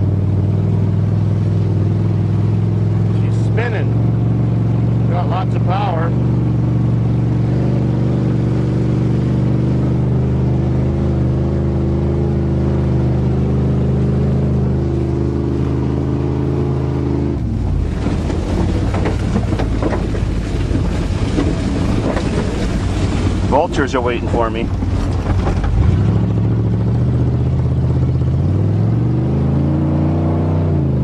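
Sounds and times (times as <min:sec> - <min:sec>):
pickup truck engine running: 0:00.0 - 0:28.8
rough rattling: 0:17.5 - 0:26.5.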